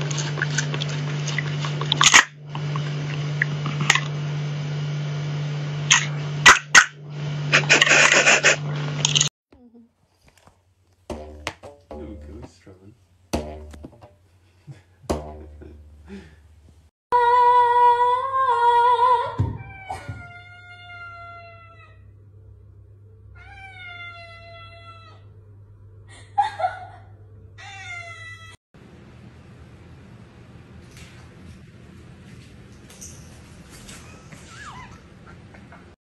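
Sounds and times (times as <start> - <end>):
cat meowing: 19.6 - 22.0, 23.4 - 25.3, 27.6 - 28.6.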